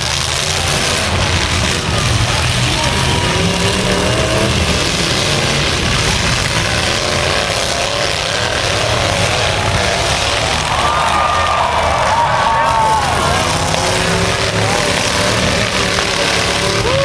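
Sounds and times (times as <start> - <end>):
pickup truck engines revving: 0.0 - 17.0.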